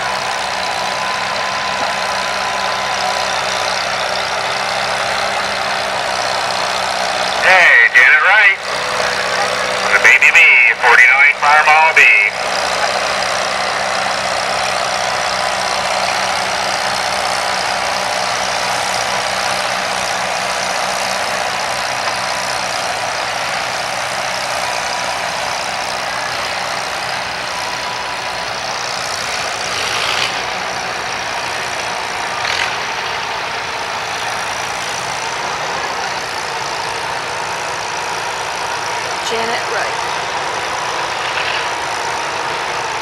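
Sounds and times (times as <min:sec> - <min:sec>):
tractor engine running hard: 0:00.0 - 0:43.0.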